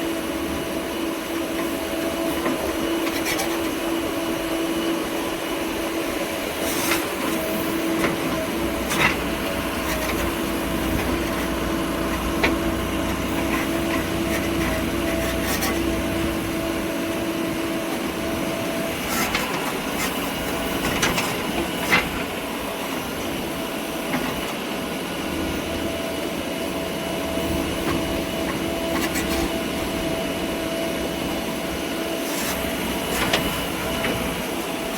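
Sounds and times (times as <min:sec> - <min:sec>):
heavy machine engine running: 0:00.0 - 0:34.9.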